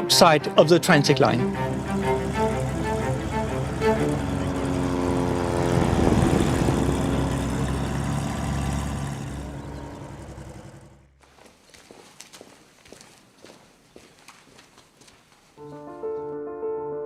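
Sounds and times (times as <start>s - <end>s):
propeller aircraft engine drone: 1.1s - 11.2s.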